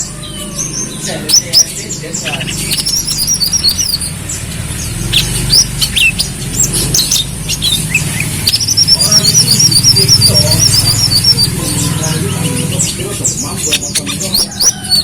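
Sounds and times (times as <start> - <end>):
sunbird chirping and twittering: 0.0 - 15.0.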